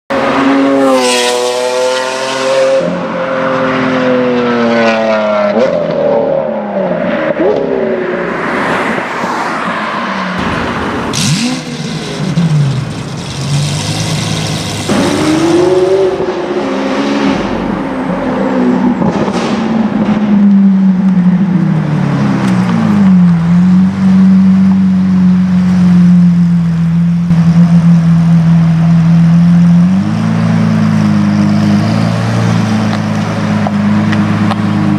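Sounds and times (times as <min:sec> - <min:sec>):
sports car engine revving: 0:10.4 - 0:34.9.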